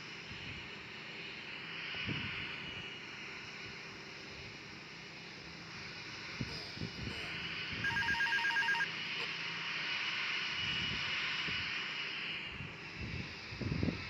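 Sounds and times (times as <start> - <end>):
jet engines rushing past: 0.0 - 14.0
rapid two-tone electronic beeps: 7.8 - 8.9.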